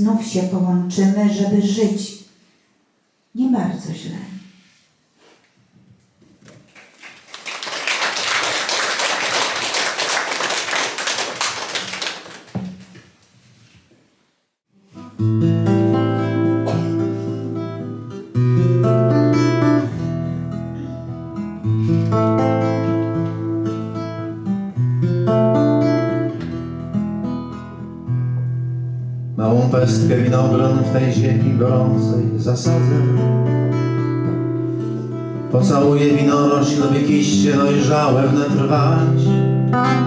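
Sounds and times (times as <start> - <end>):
audience applauding: 6.7 - 12.8
picked acoustic guitar: 14.7 - 40.0.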